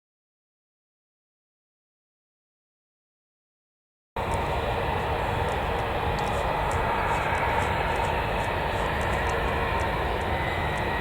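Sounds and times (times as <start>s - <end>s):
distant jet engines rumbling: 4.2s - 11.0s.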